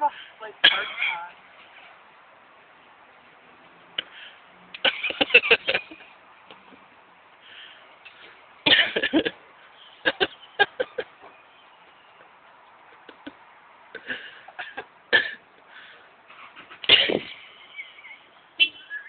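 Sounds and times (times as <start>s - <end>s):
person coughing: 0.6s - 1.3s, 8.7s - 9.3s, 14.0s - 15.4s, 16.9s - 17.4s.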